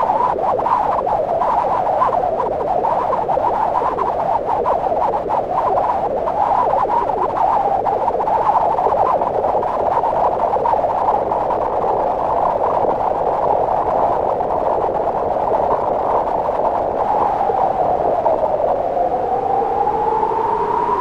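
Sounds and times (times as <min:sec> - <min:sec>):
synthesized wind rushing: 0:14.1 - 0:21.0.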